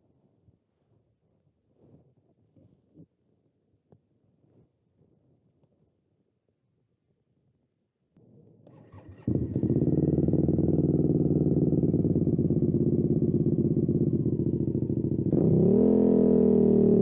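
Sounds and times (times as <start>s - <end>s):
motorcycle engine starting and idling: 8.7s - 17.0s
motorcycle engine revving: 8.8s - 17.0s.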